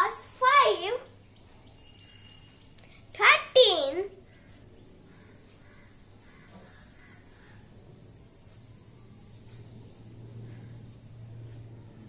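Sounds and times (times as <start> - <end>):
low steady hum: 0.0 - 12.0
faint bird calls: 4.2 - 12.0.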